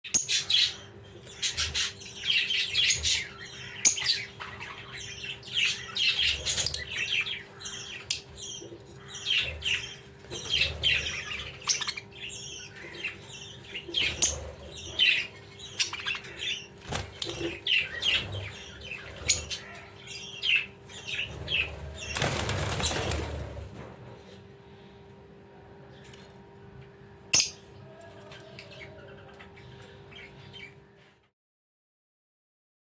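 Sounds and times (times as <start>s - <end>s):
budgies chirping: 0.1s - 24.9s, 27.3s - 31.1s
faint steady hum: 0.1s - 31.3s
wings flapping: 16.8s - 19.6s, 21.0s - 24.4s.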